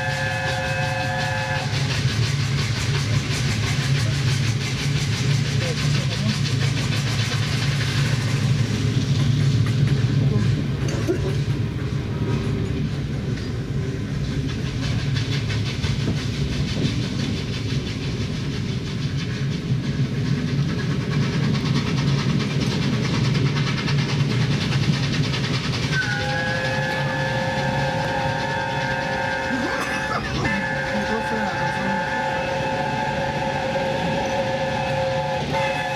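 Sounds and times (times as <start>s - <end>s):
train whistle: 0.0s - 2.0s, 25.9s - 35.9s
train rumble: 0.0s - 35.9s
train wheels clattering: 0.0s - 35.9s.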